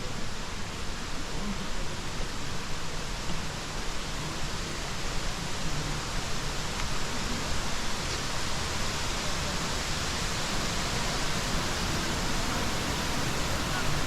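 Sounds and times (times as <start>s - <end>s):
mountain stream rushing: 0.0s - 14.0s.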